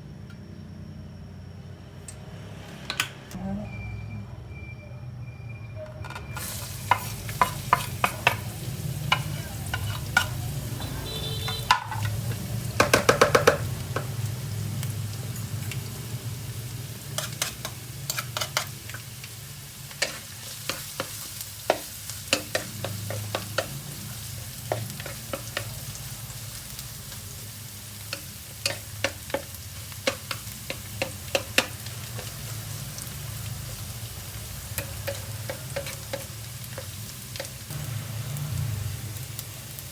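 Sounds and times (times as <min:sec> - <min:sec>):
rice sizzling in a pan: 0:06.4 - 0:39.9
utensil striking and scraping pan: 0:06.8 - 0:08.5.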